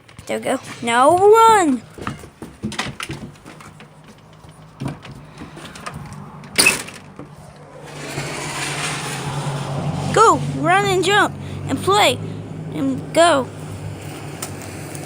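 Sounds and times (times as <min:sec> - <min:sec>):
rushing noise: 0:05.3 - 0:12.8.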